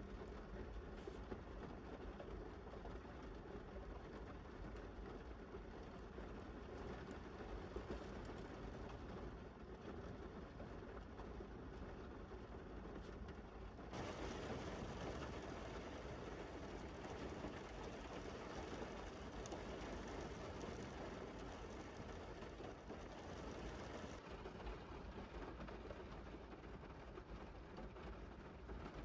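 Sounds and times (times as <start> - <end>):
rain on a car roof: 0.2 - 29.0.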